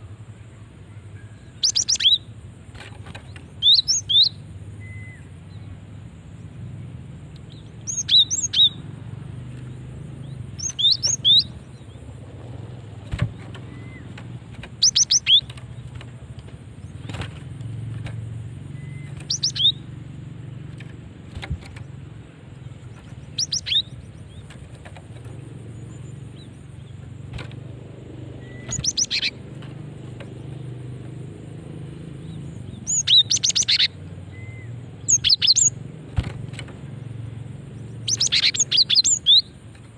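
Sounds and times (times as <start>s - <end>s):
low background hum: 0.0s - 39.9s
bird calling sharp high notes: 18.7s - 19.9s, 28.4s - 29.4s.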